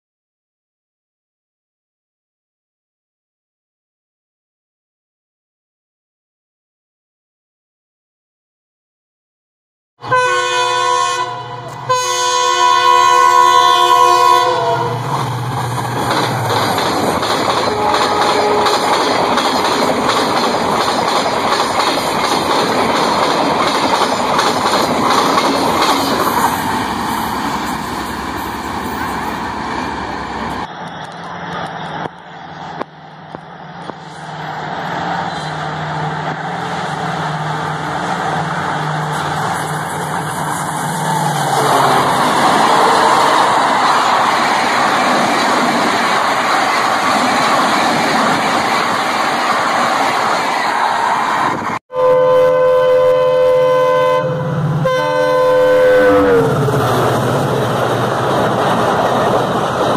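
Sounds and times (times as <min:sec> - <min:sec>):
locomotive horn: 0:10.0 - 0:15.1, 0:17.6 - 0:18.9, 0:41.5 - 0:43.3, 0:51.9 - 0:56.8
locomotive engine humming: 0:10.9 - 0:50.6, 0:52.3 - 0:59.9
train wheels clickety-clack: 0:15.1 - 0:29.1.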